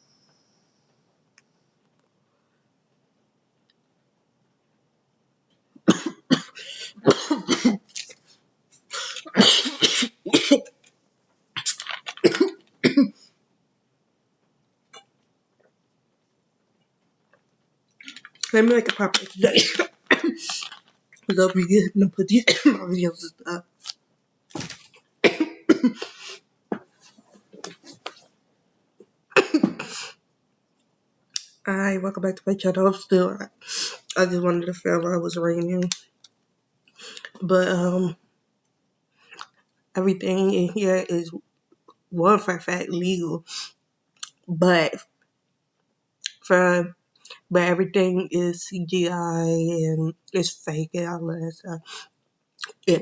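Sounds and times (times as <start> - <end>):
person coughing hard: 5.9 - 7.8, 9.0 - 10.7, 12.2 - 13.2, 19.5 - 20.6, 22.5 - 22.8, 25.2 - 26.2, 29.4 - 30.1.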